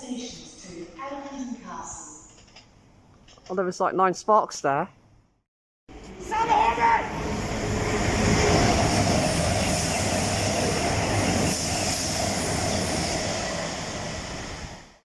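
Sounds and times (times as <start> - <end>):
electric train rumbling and whining: 5.9 - 15.0.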